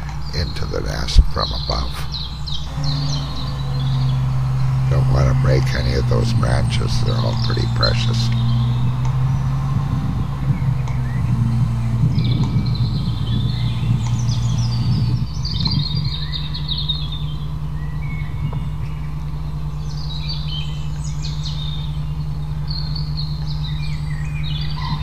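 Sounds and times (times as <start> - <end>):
crane engine running: 0.0 - 25.0
small birds twittering: 0.0 - 25.0.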